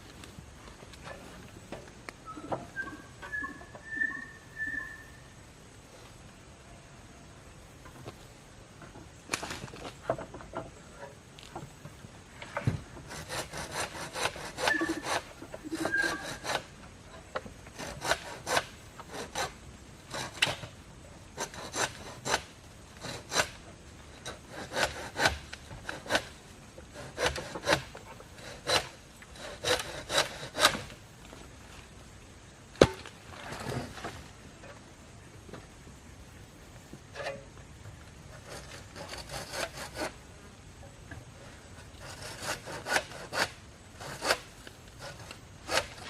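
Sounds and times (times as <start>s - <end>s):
hand saw cutting wood: 13.0s - 16.7s, 17.7s - 20.7s, 21.4s - 30.9s, 38.4s - 40.2s, 41.9s - 46.0s.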